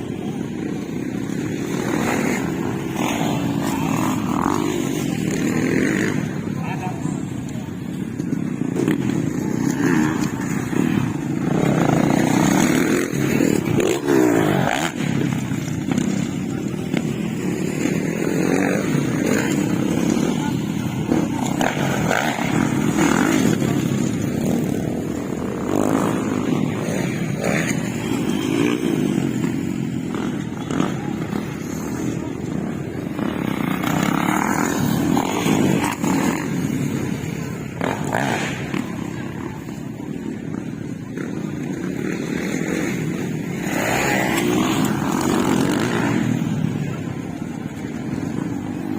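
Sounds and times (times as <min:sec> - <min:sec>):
dirt bike engines revving: 0:00.0 - 0:48.9.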